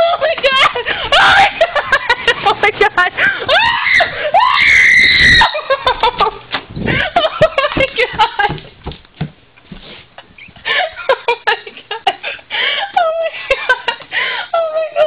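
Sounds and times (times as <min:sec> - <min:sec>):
knocks and rustling: 0:06.1 - 0:10.7.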